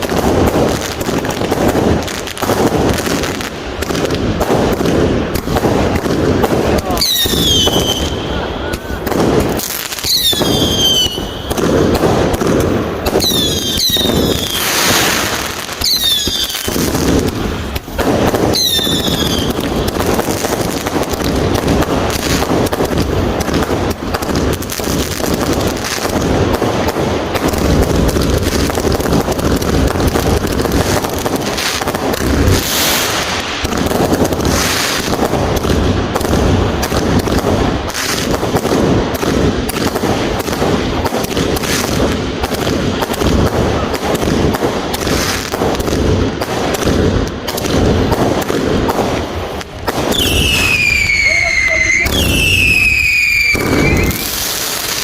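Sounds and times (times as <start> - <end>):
fireworks banging and crackling: 0.0 - 55.0
high falling whistles: 50.2 - 54.3.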